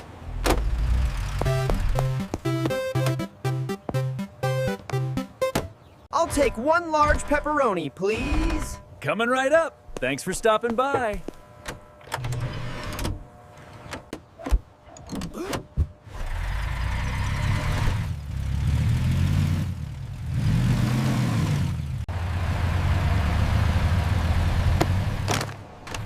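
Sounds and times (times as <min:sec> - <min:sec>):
vehicle engine running: 0:00.0 - 0:02.5, 0:16.1 - 0:25.3.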